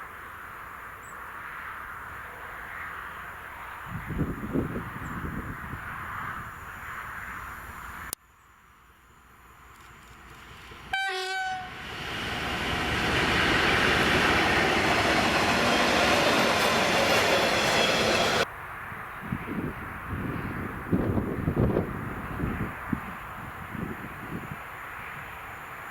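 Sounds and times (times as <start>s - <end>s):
train passing rumble: 9.6s - 18.5s
locomotive horn blast: 10.9s - 11.9s.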